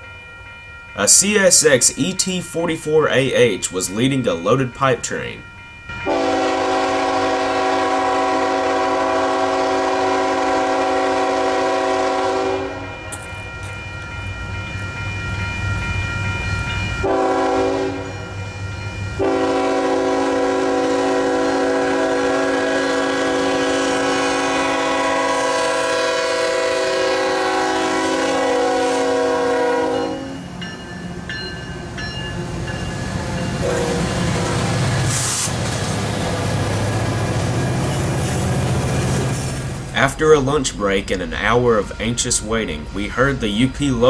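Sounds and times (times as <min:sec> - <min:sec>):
passing train rumbling: 0:00.0 - 0:44.0
locomotive horn blasts: 0:06.0 - 0:13.9, 0:17.0 - 0:18.3, 0:19.2 - 0:30.5, 0:33.6 - 0:34.8.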